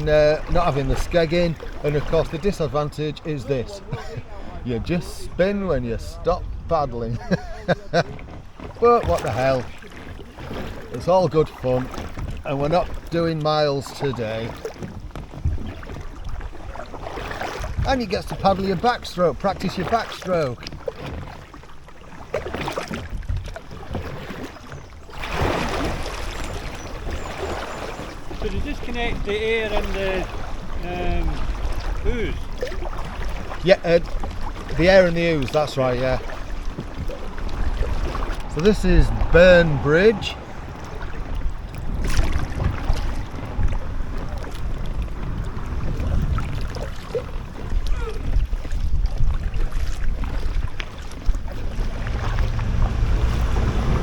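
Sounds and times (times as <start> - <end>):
wind buffeting microphone: 0.0 - 10.8, 14.5 - 19.7, 25.4 - 54.0
paddle splashing in water: 0.0 - 54.0
low rumble: 37.2 - 45.6, 51.4 - 54.0.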